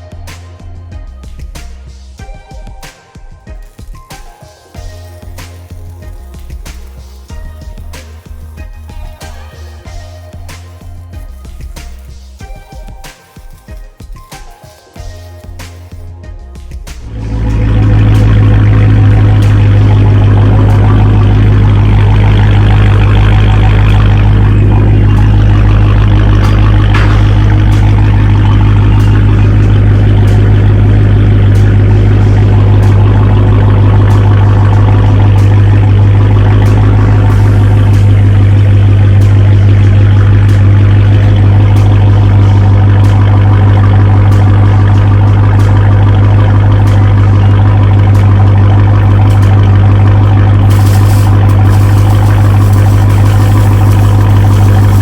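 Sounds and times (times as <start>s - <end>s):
car engine running loudly: 17.0s - 55.0s.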